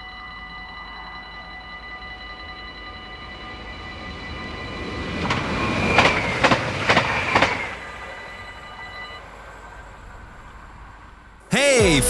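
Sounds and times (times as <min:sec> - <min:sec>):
crossing warning bells: 0:00.0 - 0:10.3.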